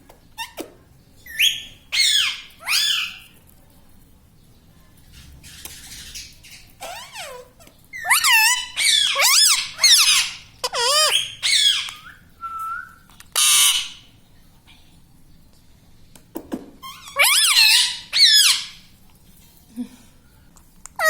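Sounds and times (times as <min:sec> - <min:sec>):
parakeet squawking: 0:01.3 - 0:03.2, 0:05.2 - 0:12.0, 0:13.4 - 0:14.1, 0:16.8 - 0:18.8
parakeet harsh screech: 0:06.8 - 0:11.9, 0:13.4 - 0:14.0, 0:16.9 - 0:18.7.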